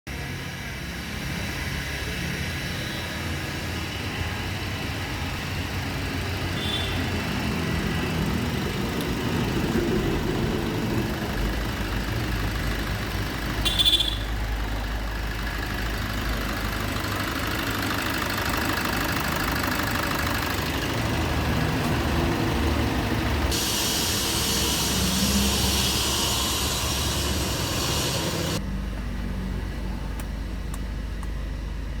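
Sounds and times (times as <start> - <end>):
car engine idling: 3.6 - 32.0
hiss: 23.4 - 28.6.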